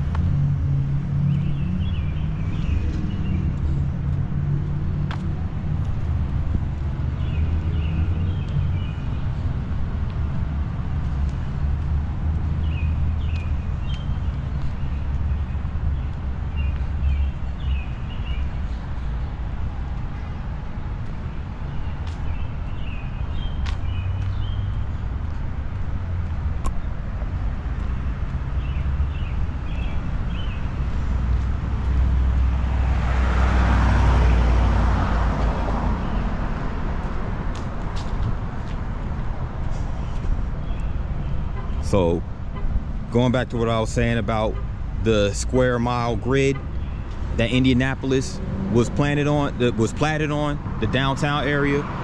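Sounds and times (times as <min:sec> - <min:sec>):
traffic rumble: 0:00.0 - 0:52.0
vehicle engine rumble passing: 0:24.0 - 0:40.5.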